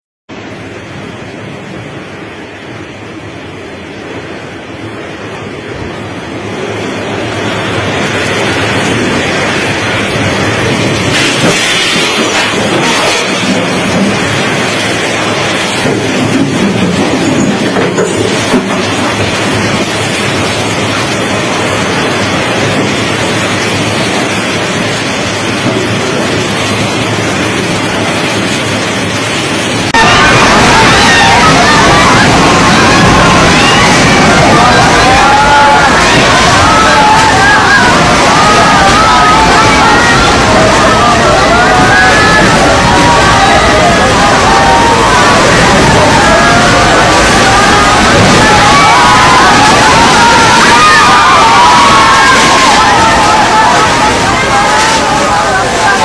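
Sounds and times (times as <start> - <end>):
heavy rain: 0.3 - 56.0
strong wind: 0.3 - 56.0.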